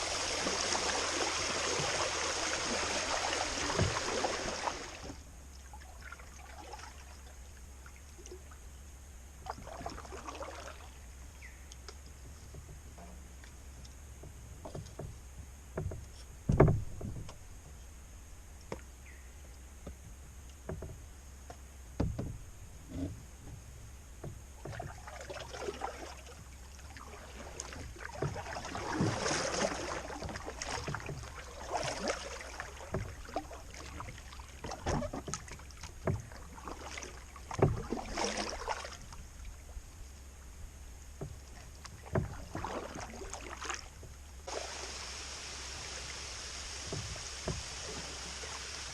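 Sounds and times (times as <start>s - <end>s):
paddle splashing water: 0.0s - 17.8s, 22.0s - 48.9s
sharp knocks: 15.8s - 17.4s.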